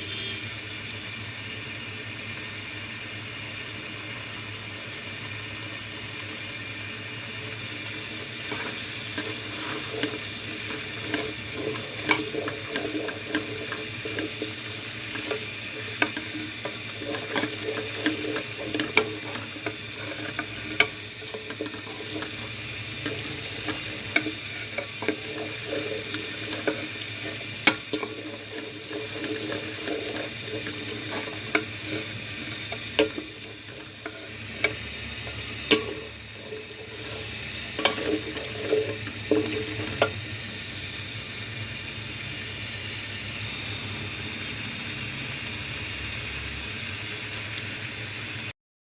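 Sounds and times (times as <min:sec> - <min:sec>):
steady hiss: 0:00.0 - 0:48.5
utensil clicking and scraping cookware: 0:07.8 - 0:40.2.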